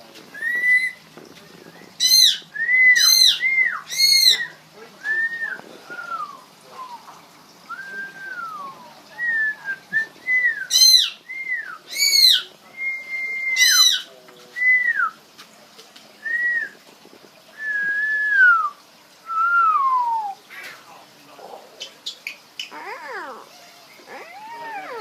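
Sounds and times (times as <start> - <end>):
parrot whistling notes: 0.4 - 1.0, 2.0 - 4.5
parrot squawking harshly: 2.0 - 2.4, 3.0 - 4.5, 10.7 - 11.2, 11.9 - 12.4, 13.6 - 14.1, 22.0 - 25.0.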